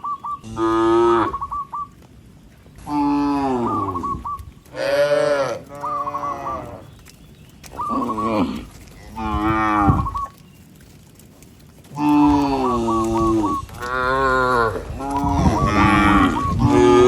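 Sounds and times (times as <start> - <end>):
cattle mooing: 0.4 - 1.4, 2.8 - 6.9, 7.8 - 10.2, 11.9 - 17.0.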